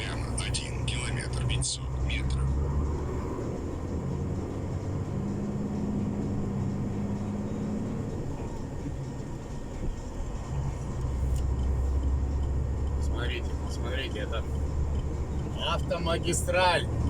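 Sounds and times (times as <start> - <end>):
truck diesel engine rumble: 0.0 - 17.0.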